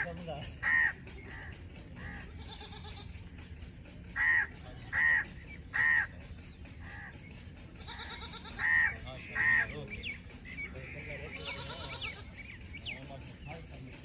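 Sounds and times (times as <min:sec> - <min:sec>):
animal crying: 0:00.0 - 0:03.3, 0:04.2 - 0:06.2, 0:06.8 - 0:09.8, 0:10.9 - 0:12.5.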